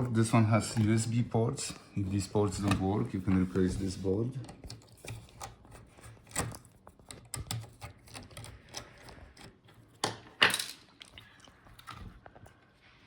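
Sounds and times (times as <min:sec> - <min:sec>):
hands and tool clicking on laptop: 0:04.5 - 0:10.3.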